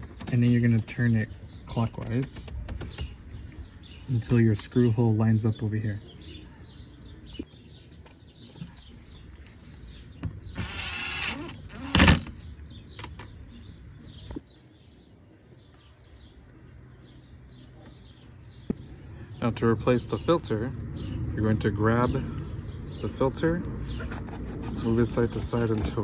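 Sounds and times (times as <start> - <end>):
birds chirping faintly: 0.0 - 26.0
power tool motor whirring: 10.6 - 12.3.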